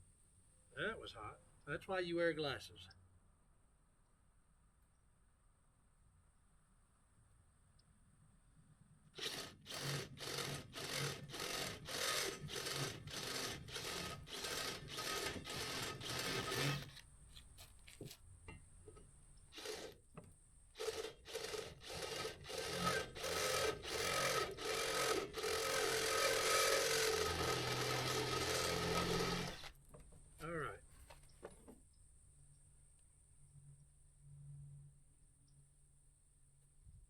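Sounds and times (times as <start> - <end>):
hand tool scraping steel: 9.2 - 18.2, 20.8 - 29.8.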